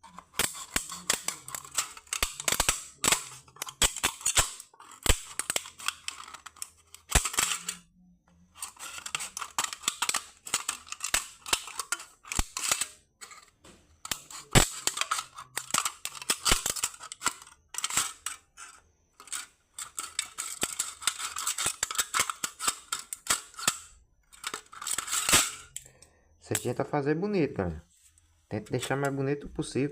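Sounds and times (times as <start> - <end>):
scissors cutting thin metal can: 0.0 - 7.8.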